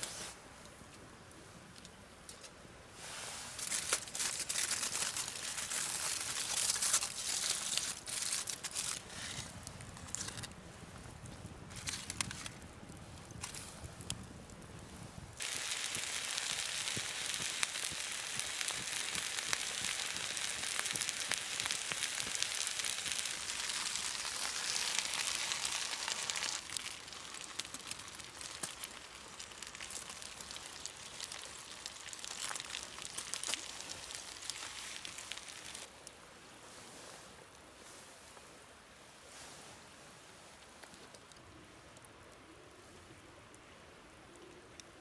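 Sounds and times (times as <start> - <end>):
food sizzling in a pan: 15.4 - 33.4.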